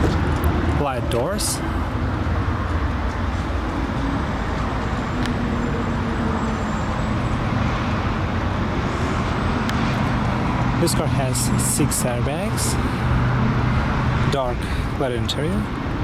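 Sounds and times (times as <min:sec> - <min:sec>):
road vehicle rumble and hiss: 0:00.0 - 0:16.0.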